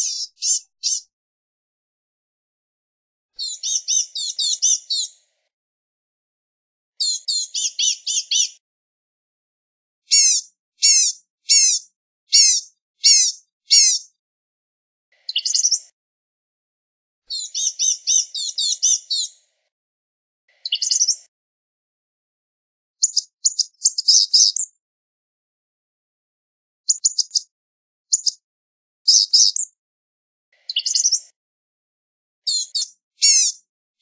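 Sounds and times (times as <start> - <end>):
gnatcatcher calling: 0.0 - 1.0, 10.1 - 14.1, 17.3 - 19.3, 23.0 - 24.7, 26.9 - 27.4, 28.1 - 28.4, 32.5 - 33.6.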